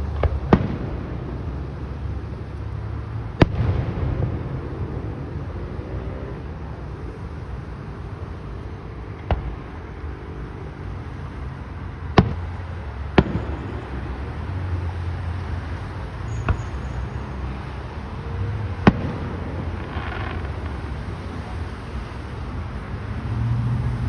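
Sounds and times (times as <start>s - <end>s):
fireworks bangs: 0.0s - 2.6s, 3.3s - 5.8s, 9.2s - 10.5s, 12.1s - 15.0s, 16.3s - 22.6s.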